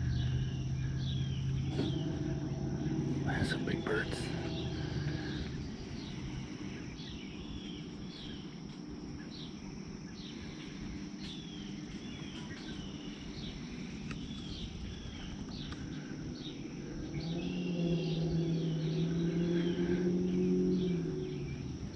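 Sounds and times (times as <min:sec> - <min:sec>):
birds calling: 0:00.0 - 0:21.9
steady low background noise: 0:00.0 - 0:21.9.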